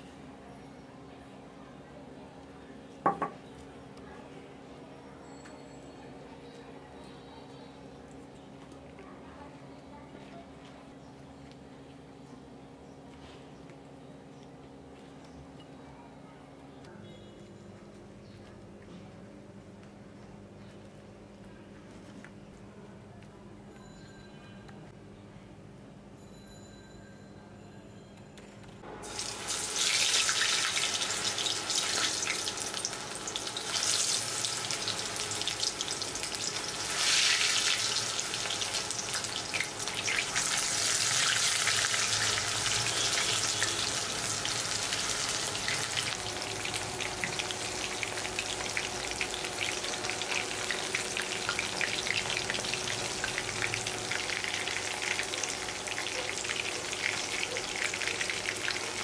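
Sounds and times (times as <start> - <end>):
food sizzling in hot oil: 29.0 - 59.0.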